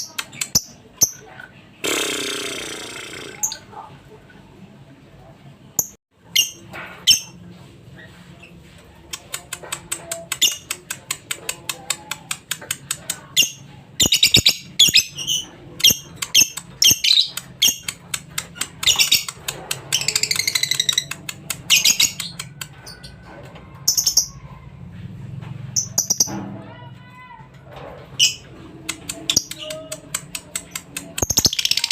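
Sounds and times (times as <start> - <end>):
lovebird chirping and trilling: 13.3 - 23.0, 23.8 - 24.4, 25.8 - 26.4, 29.3 - 31.9.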